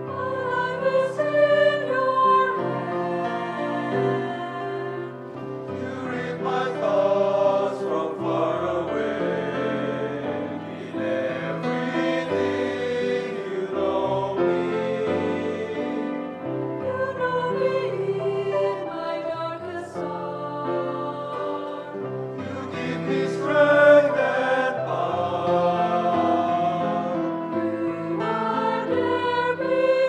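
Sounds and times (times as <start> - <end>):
choir singing in harmony: 0.0 - 30.0.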